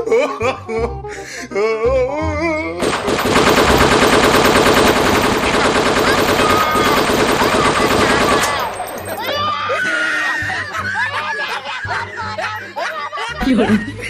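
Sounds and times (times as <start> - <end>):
machine-gun fire over loudspeaker: 2.8 - 9.2
voices: 5.4 - 9.8.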